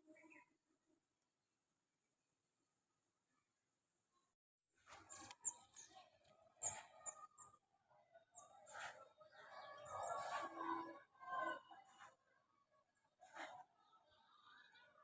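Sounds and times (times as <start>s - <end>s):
faint bird chirps: 0.0s - 0.6s, 4.9s - 12.1s.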